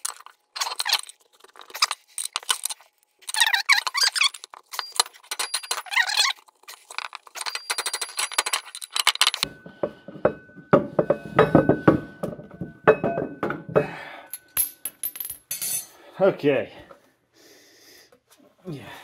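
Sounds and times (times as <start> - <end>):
metal clicking and scraping: 0.0 - 9.5
heavy metal clinks and knocks: 7.0 - 16.0.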